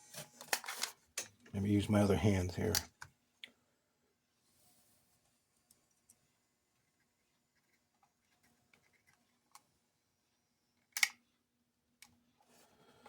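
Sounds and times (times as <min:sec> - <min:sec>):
plastic toy parts clicking: 0:10.9 - 0:11.2.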